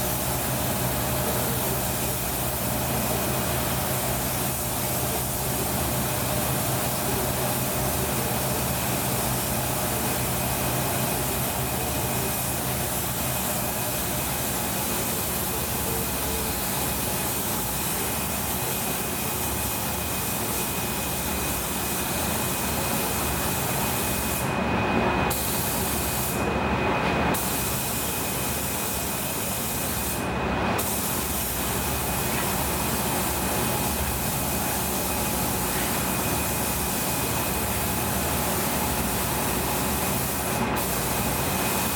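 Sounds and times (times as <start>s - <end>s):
spray gun hissing: 0.0s - 6.0s, 30.8s - 41.9s.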